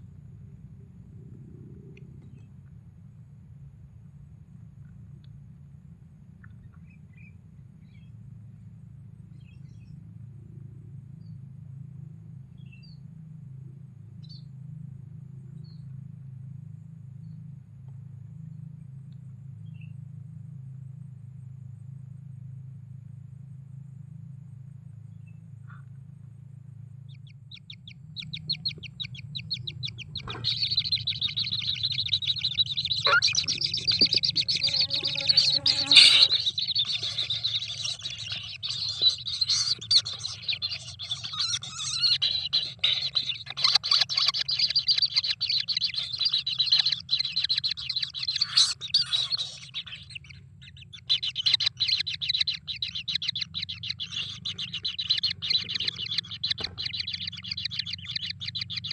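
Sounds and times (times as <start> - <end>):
steady low hum: 0.0 - 58.9
bird chicks chattering: 27.2 - 58.9.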